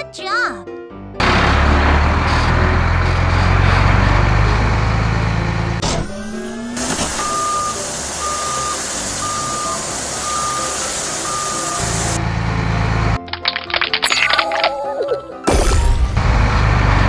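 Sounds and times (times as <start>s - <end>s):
truck engine running: 1.2s - 13.2s, 15.5s - 17.0s
truck reversing alarm beeping: 1.5s - 13.2s.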